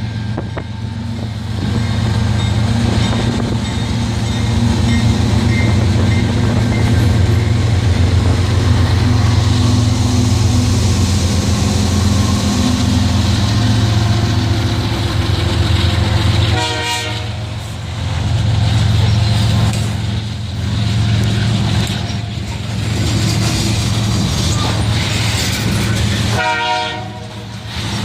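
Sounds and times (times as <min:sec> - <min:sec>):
train rumbling: 0:00.0 - 0:28.0
train horn: 0:16.4 - 0:17.6, 0:26.2 - 0:27.5.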